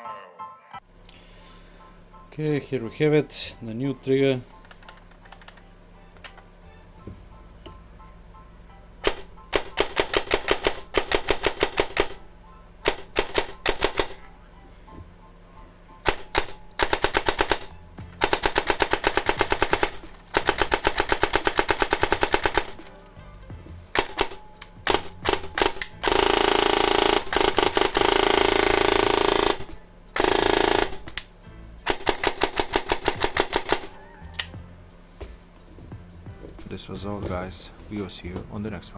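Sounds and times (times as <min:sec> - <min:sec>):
airsoft gun firing: 0:09.0 - 0:14.4, 0:16.0 - 0:23.0, 0:23.9 - 0:34.6.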